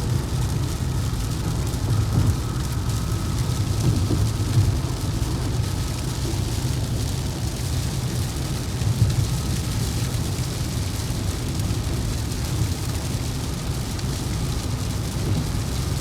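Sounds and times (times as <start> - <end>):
vehicle driving low rumble: 0.0 - 16.0.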